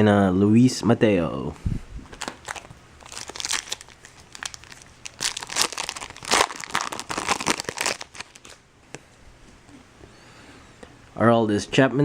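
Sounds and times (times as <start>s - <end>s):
foil wrapper crinkling: 2.1s - 8.6s.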